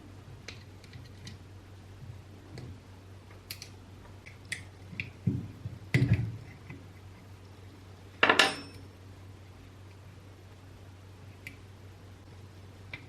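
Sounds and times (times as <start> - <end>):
tools and small parts clicking: 3.4 - 5.1.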